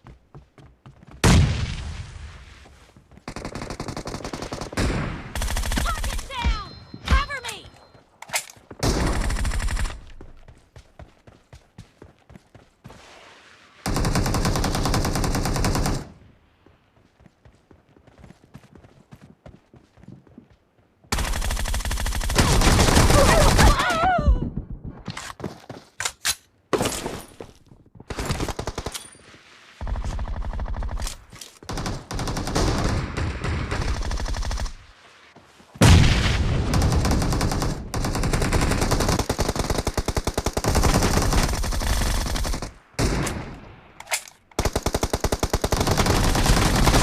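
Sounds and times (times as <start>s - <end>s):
video game automatic gunfire: 3.3s - 6.4s, 21.2s - 23.7s, 31.7s - 34.8s, 36.7s - 43.1s, 44.6s - 47.0s.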